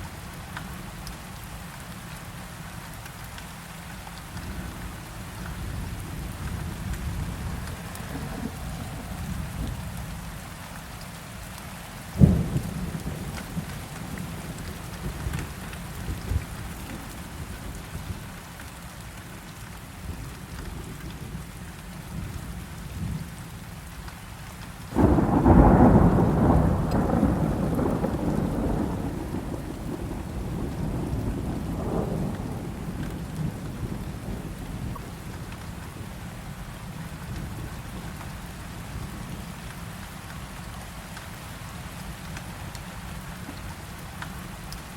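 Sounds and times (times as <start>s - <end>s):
heavy rain: 0.0s - 44.9s
rumble of thunder: 5.5s - 10.2s, 12.2s - 18.2s, 25.0s - 36.2s
thunder clap: 25.0s - 34.1s.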